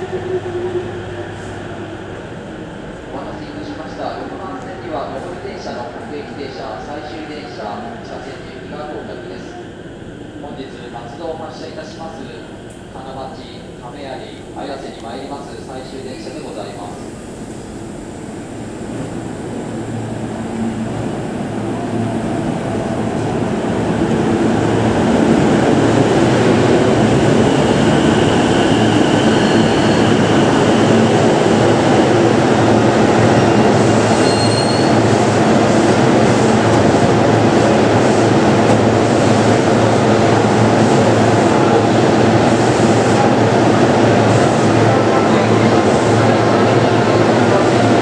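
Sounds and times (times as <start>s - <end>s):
high-pitched squeals: 33.3s - 35.1s.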